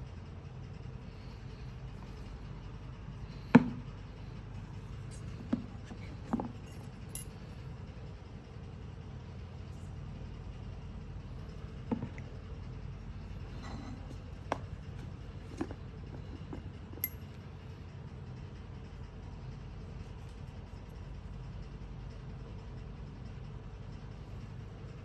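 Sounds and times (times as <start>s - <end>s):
steady low hum: 0.0s - 25.0s
hard objects clinking and knocking: 5.5s - 7.4s, 15.5s - 17.4s.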